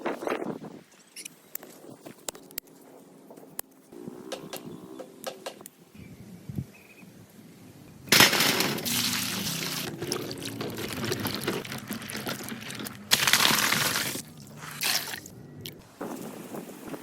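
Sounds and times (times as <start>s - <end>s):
water pouring: 8.2s - 15.3s.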